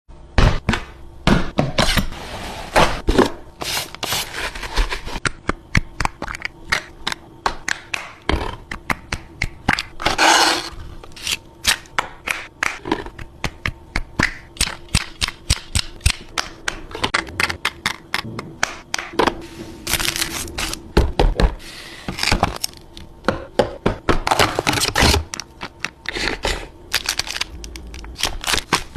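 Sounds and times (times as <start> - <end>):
faint steady hum: 0.1 - 28.9
packaging crinkling: 26.9 - 28.9.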